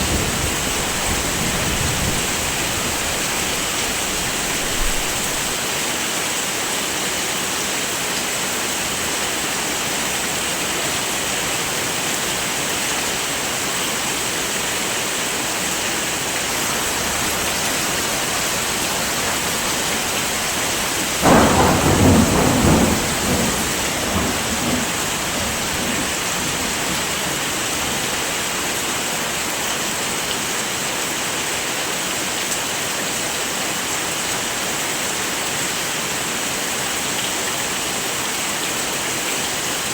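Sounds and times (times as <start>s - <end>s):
thunderclap rumbling: 0.0s - 5.6s, 16.6s - 27.6s
heavy rain falling: 0.0s - 39.9s.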